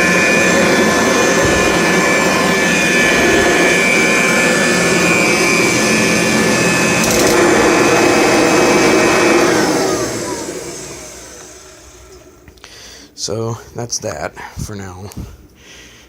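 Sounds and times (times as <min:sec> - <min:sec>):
vacuum motor spinning down: 0:00.0 - 0:12.6
vacuum cleaner whining: 0:00.0 - 0:13.4.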